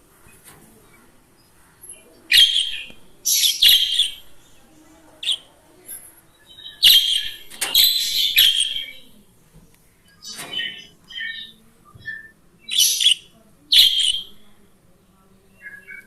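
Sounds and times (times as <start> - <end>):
budgerigar warbling and chirping: 2.3 - 4.4, 6.5 - 9.1, 10.2 - 14.4.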